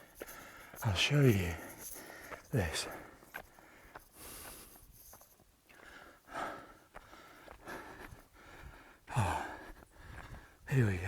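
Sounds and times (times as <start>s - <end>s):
person breathing hard: 3.6s - 4.8s, 5.8s - 10.6s.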